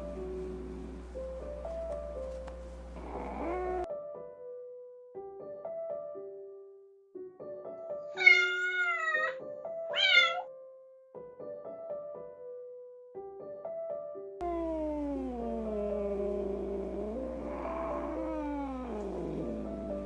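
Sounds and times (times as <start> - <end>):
light background music: 0.0 - 6.2
kitten meowing: 8.2 - 10.5, 15.1 - 20.0
low drawn-out cat call: 8.2 - 10.5, 14.4 - 20.0.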